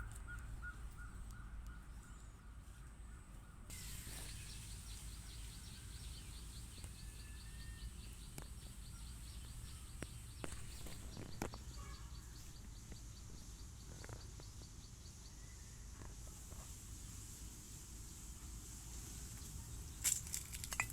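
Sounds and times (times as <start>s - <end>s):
high thin chirp: 3.7s - 9.8s.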